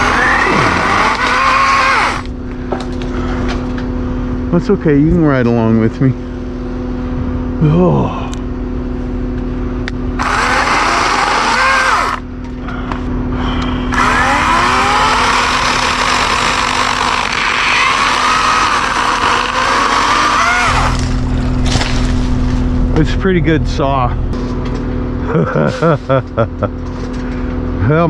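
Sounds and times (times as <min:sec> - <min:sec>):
electric chainsaw cutting limbs: 0:00.0 - 0:02.4, 0:10.2 - 0:12.3, 0:13.9 - 0:24.4
truck engine idling hum: 0:00.0 - 0:24.4.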